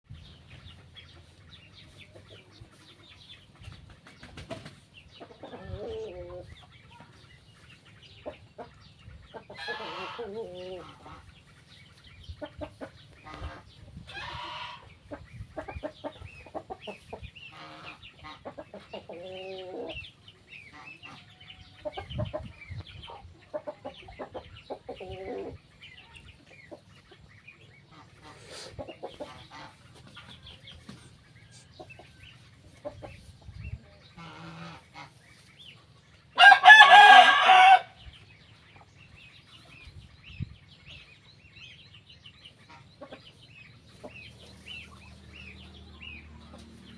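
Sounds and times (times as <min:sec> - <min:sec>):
hens clucking: 0:00.1 - 0:46.9
rooster crowing: 0:36.4 - 0:37.9.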